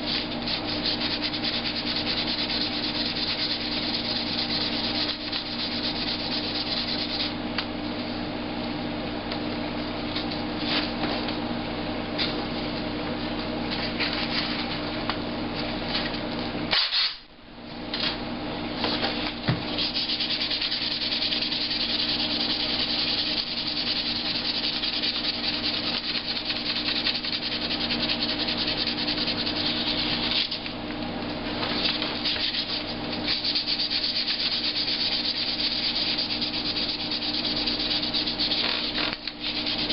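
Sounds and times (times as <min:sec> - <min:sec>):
sandpaper rubbing: 0:00.1 - 0:07.3, 0:19.7 - 0:30.6, 0:31.8 - 0:39.9.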